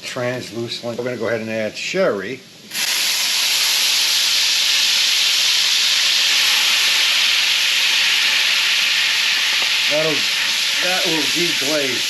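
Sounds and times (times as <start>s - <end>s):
liquid sizzling in a hot skillet: 2.7s - 12.0s.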